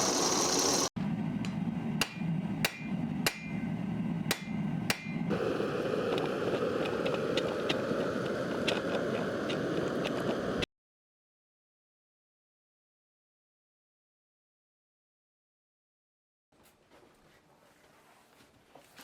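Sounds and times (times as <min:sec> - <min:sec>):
hammer striking leather punch: 0:02.0 - 0:03.6, 0:04.3 - 0:05.2.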